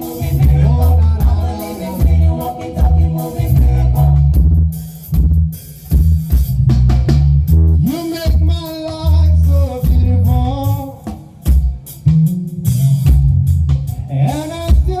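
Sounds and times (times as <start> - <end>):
person singing: 0.0 - 4.4, 13.9 - 15.0
bass guitar: 0.0 - 15.0
drum kit: 0.0 - 15.0.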